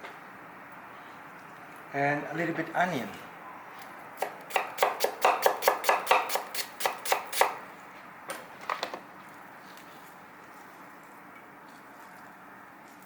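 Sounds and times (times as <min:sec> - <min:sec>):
knife chopping onion: 0:04.2 - 0:07.5.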